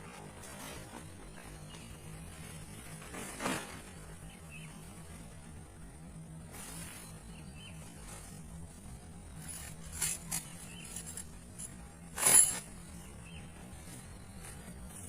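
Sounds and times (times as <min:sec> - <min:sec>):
low hum: 0:00.0 - 0:15.0
clinks and scrapes of handling: 0:09.4 - 0:13.0.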